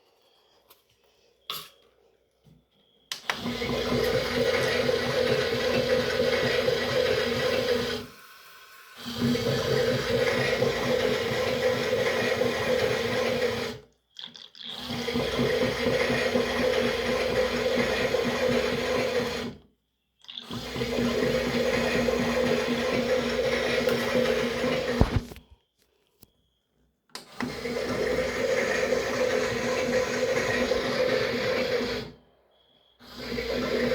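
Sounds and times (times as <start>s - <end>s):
toy washing machine motor hum: 3.1s - 13.9s, 14.7s - 19.6s, 20.2s - 25.4s, 27.2s - 32.3s, 33.0s - 33.9s.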